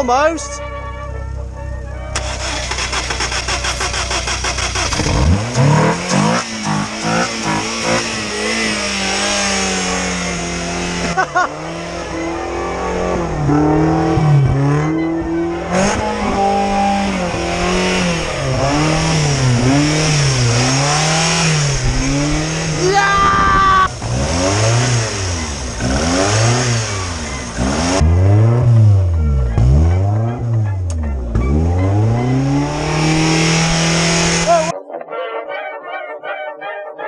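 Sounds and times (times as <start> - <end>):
car engine starting and revving: 2.1 - 22.9, 23.6 - 34.7.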